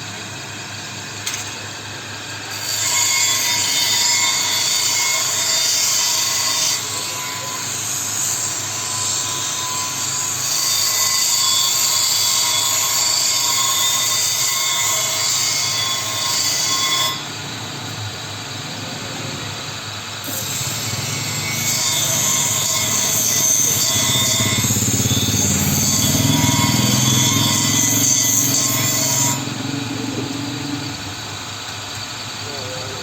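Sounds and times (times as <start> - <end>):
grinder grinding steel: 2.3 - 31.8.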